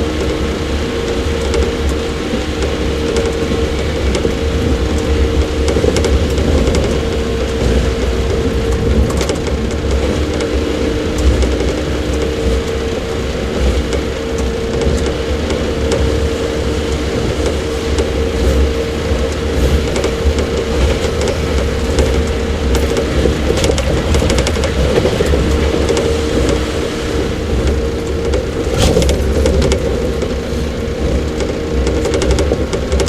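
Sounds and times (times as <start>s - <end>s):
sharp clicks and rattles: 0.0s - 33.0s
traction motor hum: 0.0s - 33.0s
train wheels rumbling on rail: 0.0s - 33.0s.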